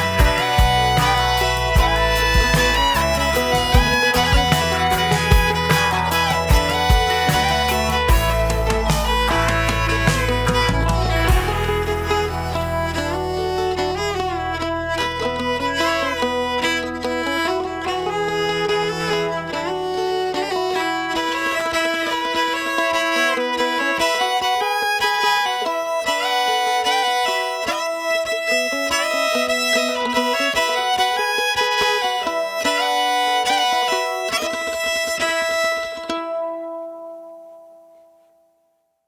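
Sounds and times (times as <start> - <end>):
low bass: 0.0 - 19.9
fiddle sliding melody: 0.0 - 37.8
plucked strings: 0.0 - 38.2.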